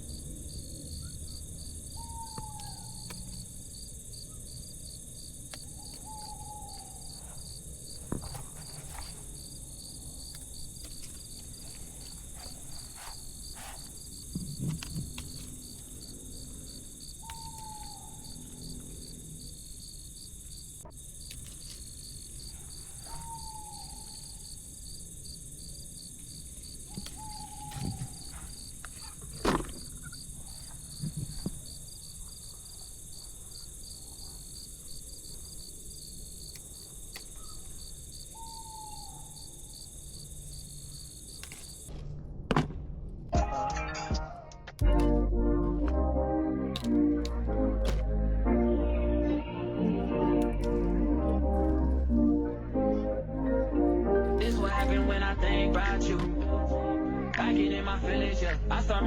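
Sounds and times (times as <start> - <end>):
crickets chirring: 0.0 - 41.9, 49.6 - 58.2
bird falling call: 0.7 - 4.6, 5.5 - 19.7, 21.4 - 25.1, 26.4 - 33.0, 37.3 - 39.8.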